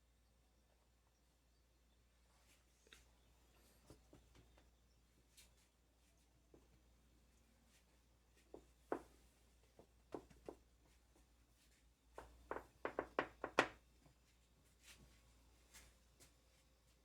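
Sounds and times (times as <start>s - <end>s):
hands tapping dough and tray: 12.2s - 13.8s.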